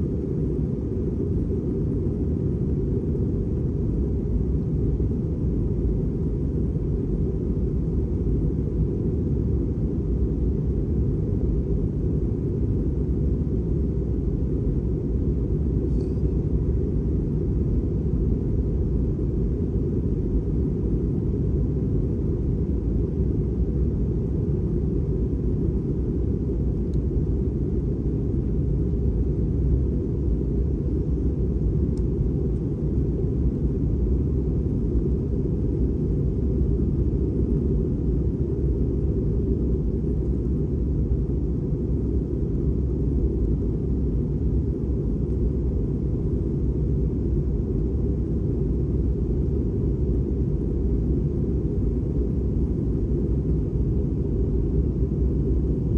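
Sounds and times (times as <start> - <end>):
airliner cabin engine rumble: 0.0 - 55.9.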